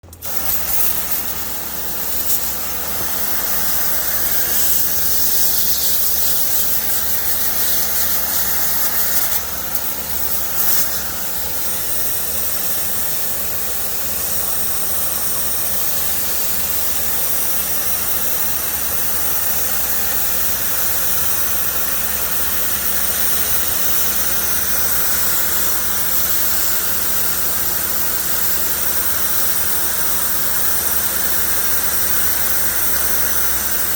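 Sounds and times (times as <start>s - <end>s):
pressure washer motor hum: 0.0s - 33.9s
water spray hissing: 0.1s - 15.5s.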